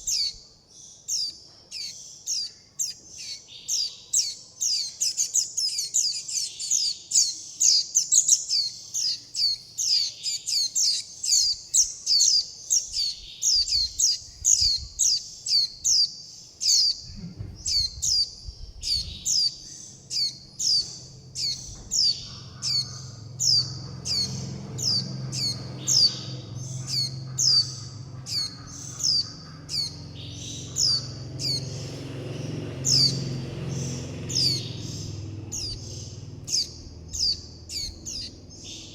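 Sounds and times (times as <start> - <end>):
fledgling bird begging calls: 18.8 - 38.9.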